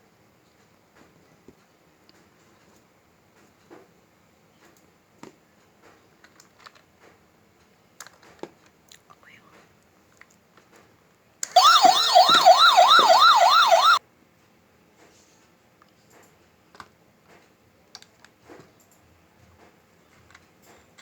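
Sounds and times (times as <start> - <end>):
toy electronic siren wailing: 11.6 - 14.0.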